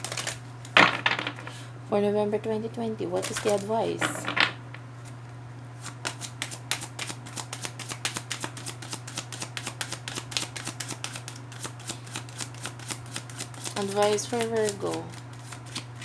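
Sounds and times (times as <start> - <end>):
cards being shuffled by hand: 0.0 - 1.6, 3.2 - 5.2, 5.8 - 16.0
steady low hum: 0.0 - 6.4.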